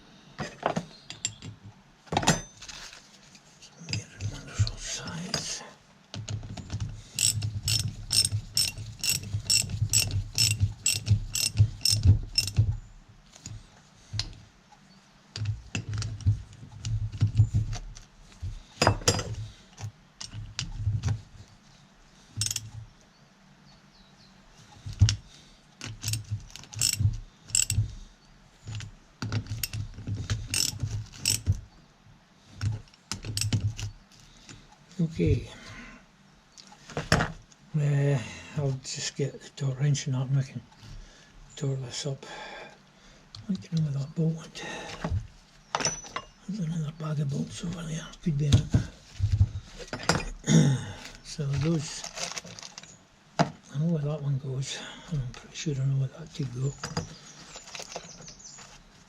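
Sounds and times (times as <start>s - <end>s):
socket ratchet clicking: 7.2s - 12.6s, 22.4s - 22.7s, 25.9s - 27.8s, 30.5s - 31.5s, 33.2s - 33.6s.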